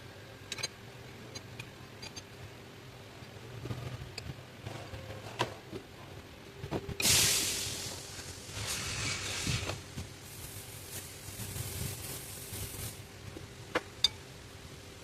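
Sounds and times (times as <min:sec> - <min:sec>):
loud hiss: 0:07.0 - 0:13.2.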